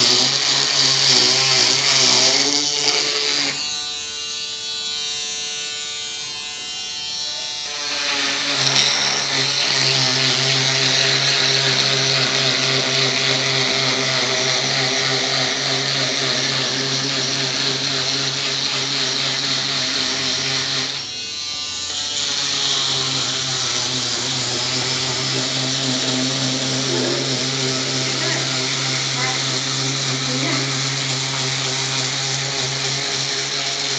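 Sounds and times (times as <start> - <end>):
motor whine: 0.0 - 33.9
rough cutting noise: 0.0 - 33.9.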